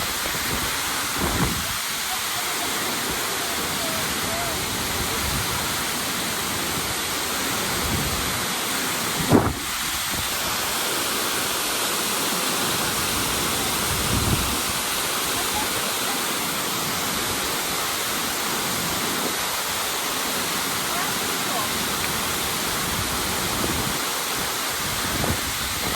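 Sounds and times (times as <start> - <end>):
waterfall roaring: 0.0 - 25.9.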